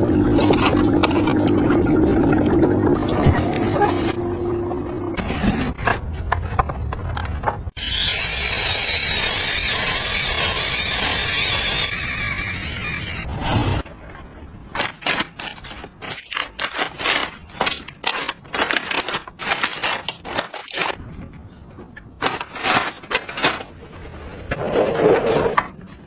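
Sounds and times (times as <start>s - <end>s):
scraping sound: 0.3s - 14.0s.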